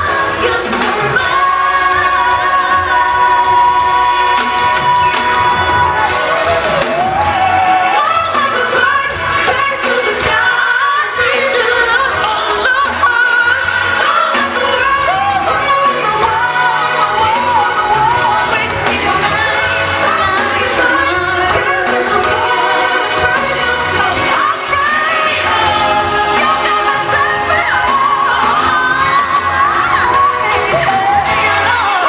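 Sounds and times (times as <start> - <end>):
backing band playing: 0.0 - 32.0
choir singing: 0.0 - 32.0
woman singing lead vocal: 0.0 - 32.0.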